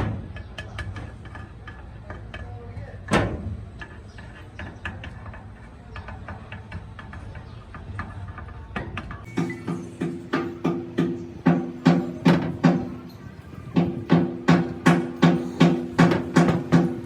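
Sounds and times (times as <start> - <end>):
rhythmic ringing knocking: 9.3 - 17.0.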